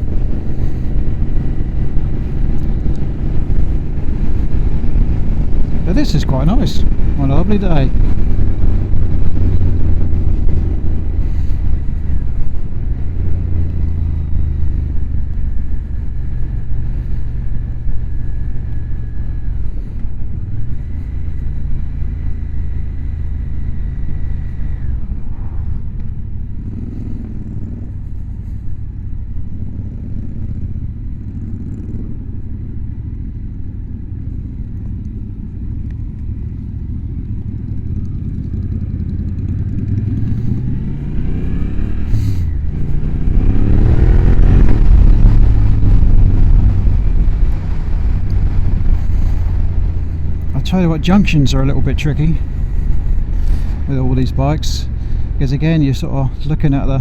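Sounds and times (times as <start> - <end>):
wind noise: 0.0 - 22.3, 38.9 - 57.0
motorcycle engine running: 0.0 - 57.0.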